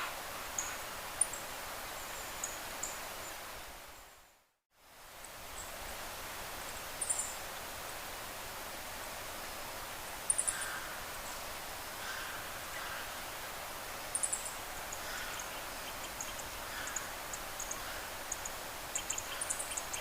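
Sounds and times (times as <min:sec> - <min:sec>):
steady forest hiss: 0:00.0 - 0:20.0
small birds calling: 0:14.1 - 0:20.0.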